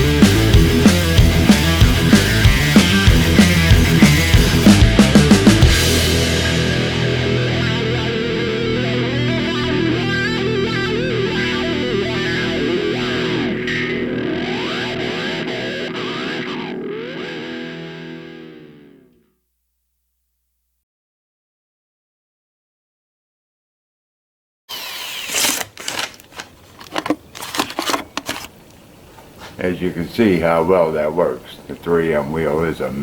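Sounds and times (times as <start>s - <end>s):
rock music with distorted guitar: 0.0s - 19.1s.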